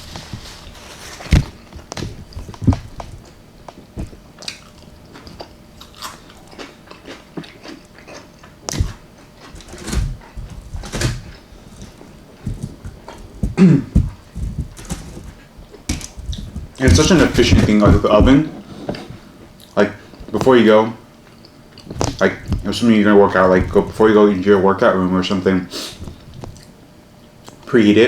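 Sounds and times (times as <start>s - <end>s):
chewing and biting food: 0.0s - 18.6s, 25.9s - 27.7s.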